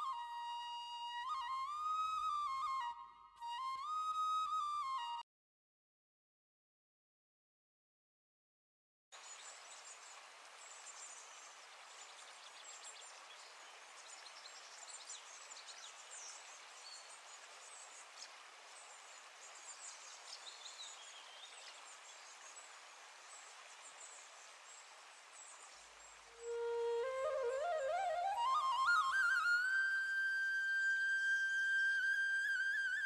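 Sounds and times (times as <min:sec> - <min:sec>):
steady hiss: 0:09.2 - 0:33.0.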